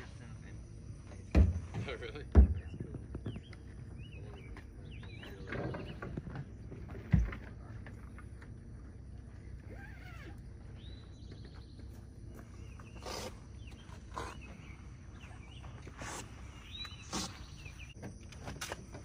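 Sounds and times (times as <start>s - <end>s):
birds whistling: 2.6s - 6.6s, 9.6s - 18.0s.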